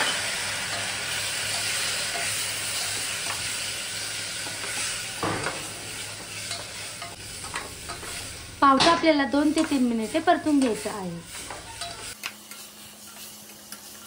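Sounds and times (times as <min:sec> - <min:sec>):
beans sizzling in hot oil: 0:00.0 - 0:14.0
spatula scraping against a pot: 0:10.6 - 0:14.0.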